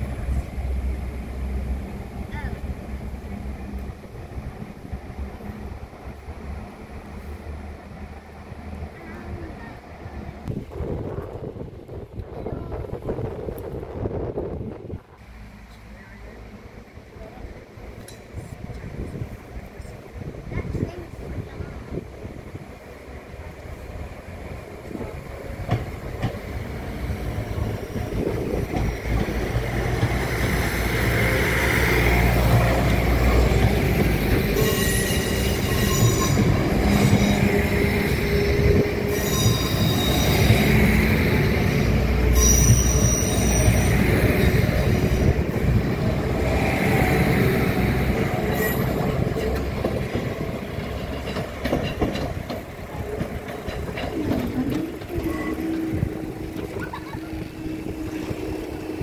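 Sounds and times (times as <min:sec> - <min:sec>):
diesel train engines running: 0:00.0 - 0:59.0
train wheels rumbling and clacking: 0:00.0 - 0:59.0
high-pitched wheel squeals: 0:34.6 - 0:40.7, 0:42.3 - 0:44.2.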